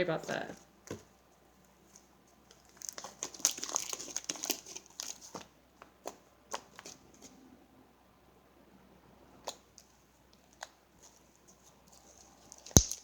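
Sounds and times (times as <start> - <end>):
slime crackling and clicking: 12.7 - 13.0.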